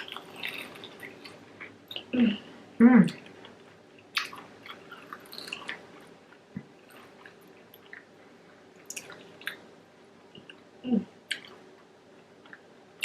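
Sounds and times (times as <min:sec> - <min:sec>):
person chewing crunchy snack: 0:00.0 - 0:02.1, 0:03.2 - 0:08.2.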